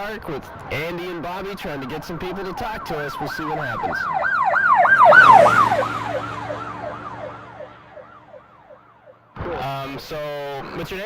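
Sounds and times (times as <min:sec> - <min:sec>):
emergency siren fast yelp: 0:02.2 - 0:09.3
vehicle engine: 0:03.4 - 0:09.3.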